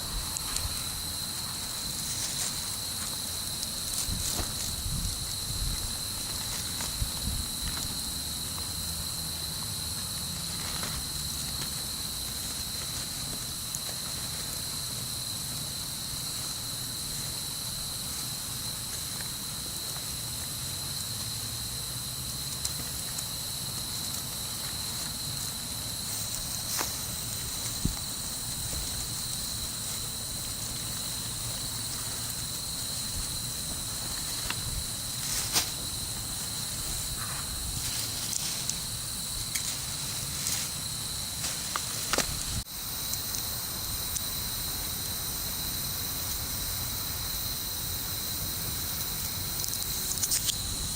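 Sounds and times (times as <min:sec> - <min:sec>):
steady high hiss: 0:00.0 - 0:50.9
wood bonfire crackling: 0:22.1 - 0:43.6.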